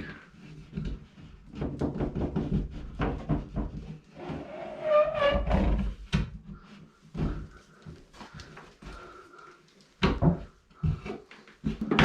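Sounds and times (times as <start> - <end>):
cable knocking and rustling in wall: 0.0 - 4.4, 9.8 - 12.0.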